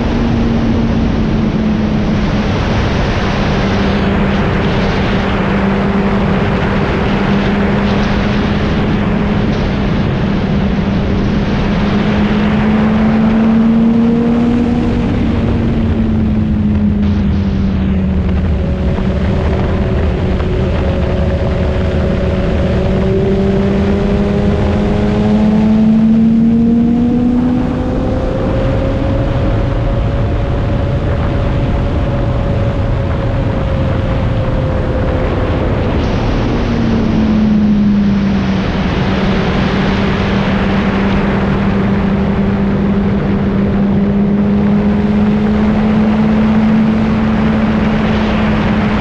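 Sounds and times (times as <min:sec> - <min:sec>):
wind noise: 0:00.0 - 0:49.0
motorcycle engine running: 0:03.7 - 0:39.4.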